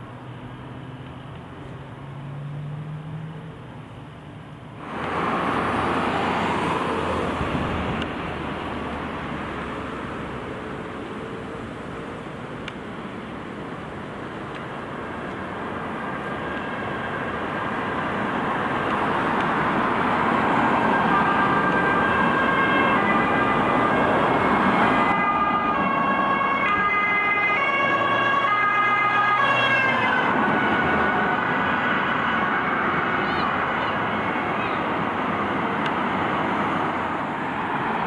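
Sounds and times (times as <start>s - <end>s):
vehicle engine and tyre noise: 0.0s - 38.0s
emergency vehicle siren: 13.7s - 38.0s.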